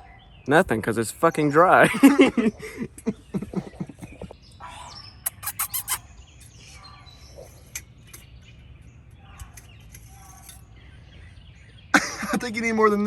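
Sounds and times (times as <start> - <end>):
birds chirping: 0.0 - 13.0
sharp clicks: 5.3 - 6.0.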